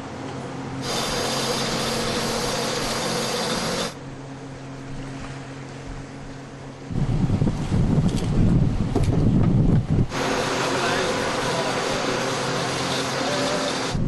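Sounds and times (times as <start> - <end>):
boat engine running: 0.0 - 14.0
loud rushing hiss: 0.8 - 4.0, 10.1 - 14.0.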